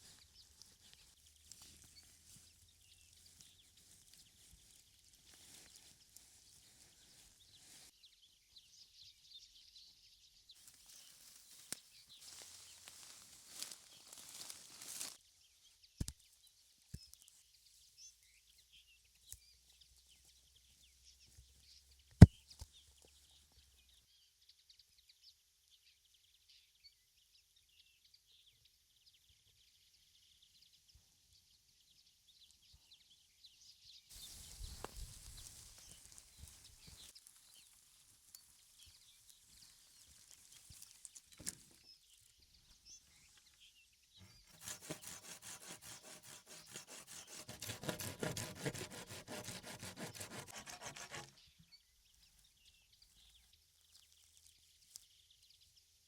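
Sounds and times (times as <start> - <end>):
scraping on wood: 44.3 - 51.4
rhythmic sawing strokes on wood: 44.5 - 51.3.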